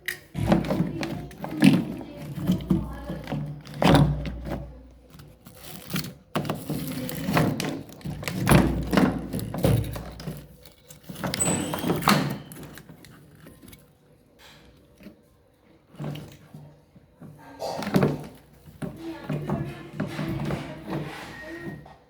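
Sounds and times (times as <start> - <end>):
knocks thuds and clatter: 6.3 - 12.8.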